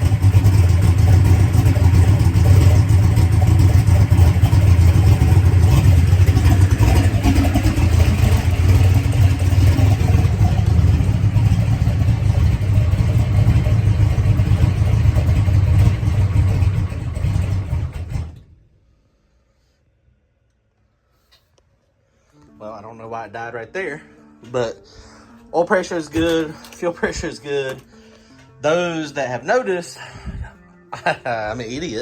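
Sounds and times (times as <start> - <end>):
race car engine running: 0.0 - 18.4.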